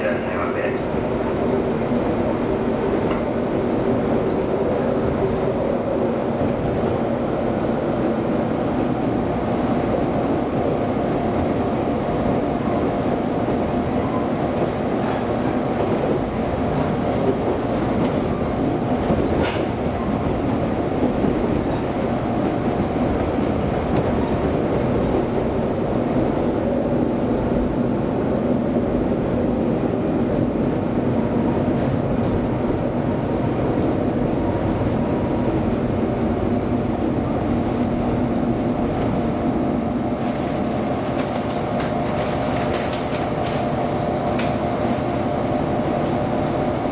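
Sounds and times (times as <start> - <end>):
train rumbling on rails: 0.0 - 46.9
high-pitched wheel squeal: 31.6 - 33.5, 34.5 - 36.0, 36.6 - 41.9.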